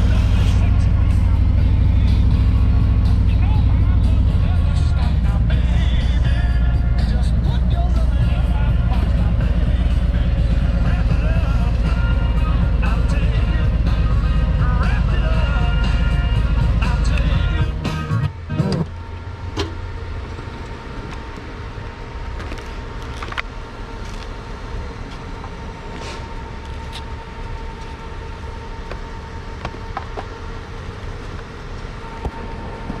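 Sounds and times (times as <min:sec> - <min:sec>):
motorcycle engine running: 0:00.0 - 0:24.2
faint steady whine: 0:00.0 - 0:33.0.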